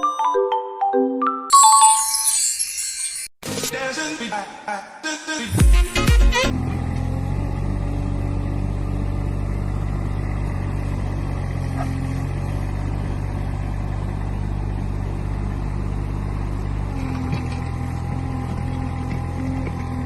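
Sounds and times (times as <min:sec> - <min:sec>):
vehicle engine droning: 0:06.5 - 0:20.0.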